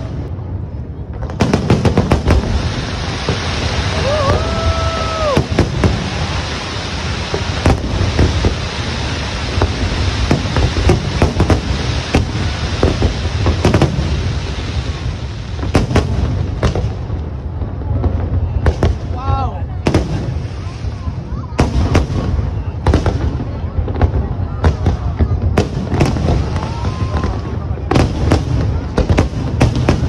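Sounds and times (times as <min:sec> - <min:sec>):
fireworks bangs and crackling: 0:00.0 - 0:30.0
low rumble of bursting shells: 0:00.0 - 0:30.0
whistle-like firework tone: 0:03.7 - 0:06.4.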